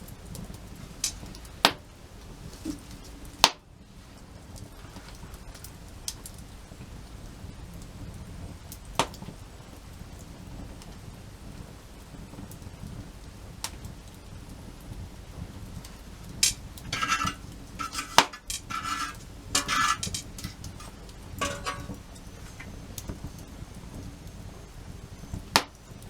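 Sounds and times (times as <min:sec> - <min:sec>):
low steady rumble: 0:09.4 - 0:26.0
scraping and clinking handling: 0:16.4 - 0:22.8.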